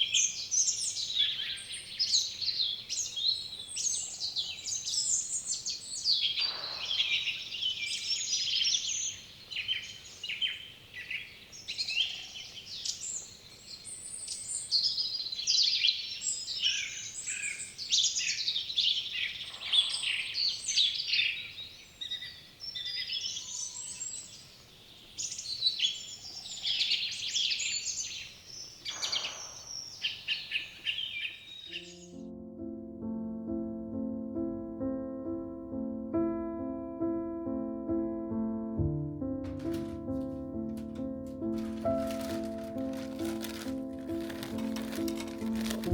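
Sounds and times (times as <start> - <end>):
songbirds chirping and trilling: 0.0 - 32.4, 39.6 - 45.9.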